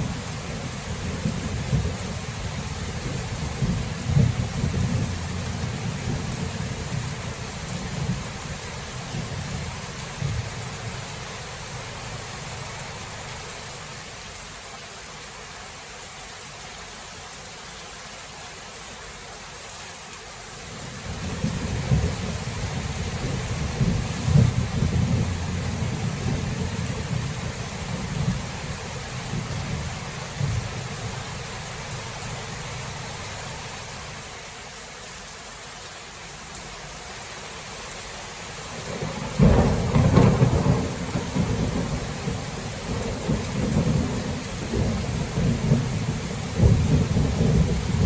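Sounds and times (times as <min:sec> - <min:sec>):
rolling thunder: 0:00.0 - 0:08.3, 0:21.1 - 0:30.8, 0:38.9 - 0:48.0
steady rain: 0:00.0 - 0:48.0
sharp loud thunder clap: 0:39.0 - 0:45.9.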